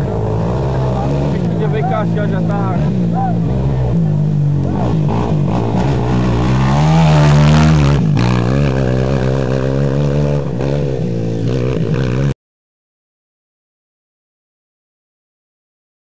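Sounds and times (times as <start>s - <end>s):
motorcycle engine revving: 0.0s - 12.4s.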